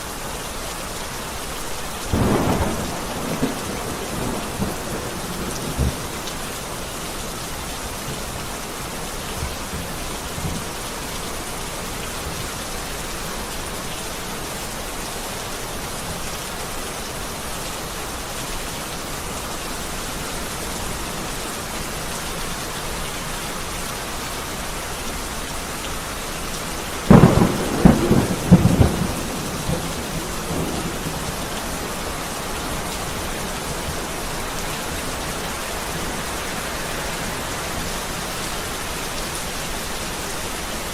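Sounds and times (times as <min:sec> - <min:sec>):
heavy rain: 0:00.0 - 0:40.9
thunder crack and rumble: 0:02.1 - 0:06.4, 0:27.1 - 0:34.1.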